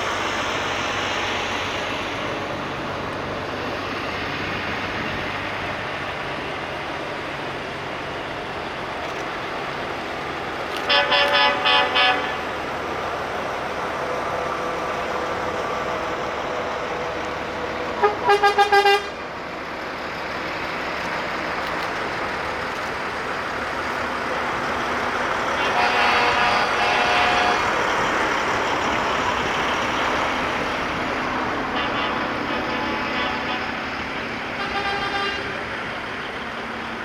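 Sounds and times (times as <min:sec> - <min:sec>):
passing trucks running: 0:00.0 - 0:37.0
truck horns tooting: 0:10.7 - 0:12.6, 0:17.9 - 0:19.2, 0:25.4 - 0:28.1, 0:31.6 - 0:35.7.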